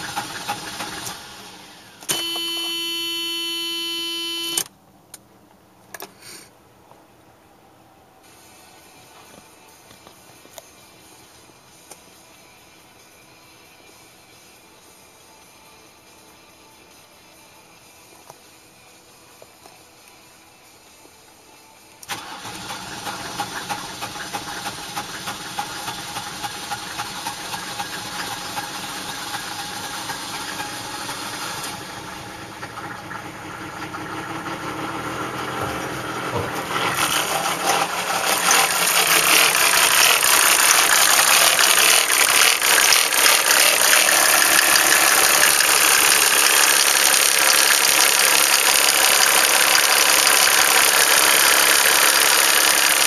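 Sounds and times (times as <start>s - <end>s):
diesel engine starting and clattering: 0.0s - 2.8s, 22.0s - 53.0s.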